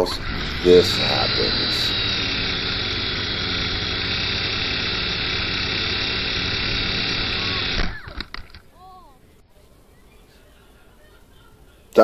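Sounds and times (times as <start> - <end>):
quadcopter motors buzzing: 0.0 - 8.8.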